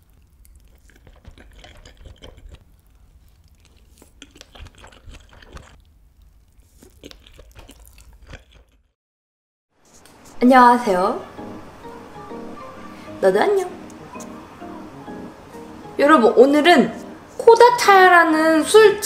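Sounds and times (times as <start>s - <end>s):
wet chewing and mouth clicks: 0.0s - 9.0s.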